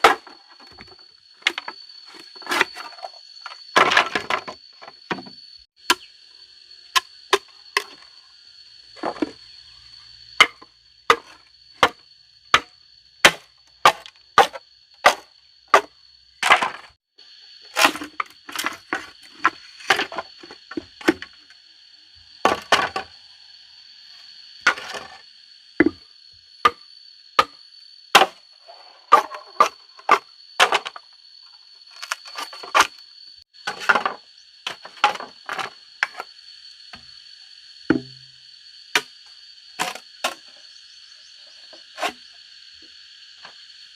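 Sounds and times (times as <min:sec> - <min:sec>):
wood being chopped: 0:10.4 - 0:16.8, 0:28.2 - 0:28.4, 0:37.9 - 0:38.2.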